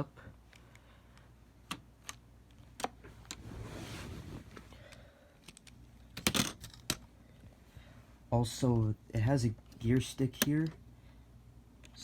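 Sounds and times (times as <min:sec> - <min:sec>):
plastic parts clicking and rattling: 0:05.4 - 0:07.1.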